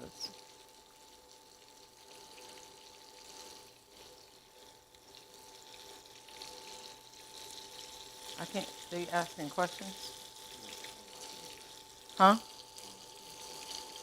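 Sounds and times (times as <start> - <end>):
chicken frying in a pan: 0.0 - 14.0.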